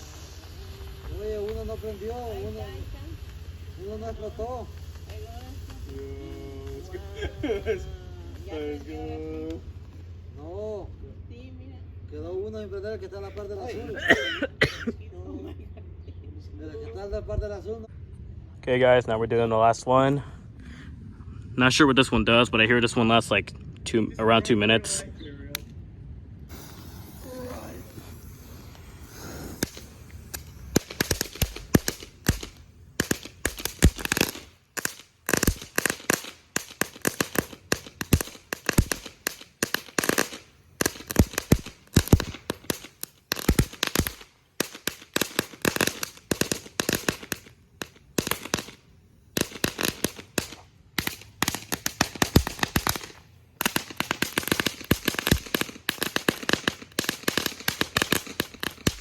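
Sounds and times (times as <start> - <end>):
firework rapid bangs and crackles: 0.0 - 10.4, 26.5 - 59.0.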